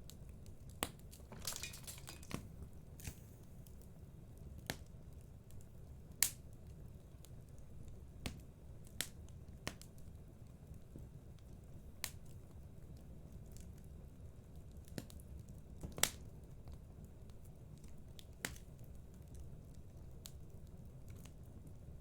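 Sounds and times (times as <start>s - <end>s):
fire popping: 0.0s - 14.0s
fireplace fire crackling: 0.0s - 22.0s.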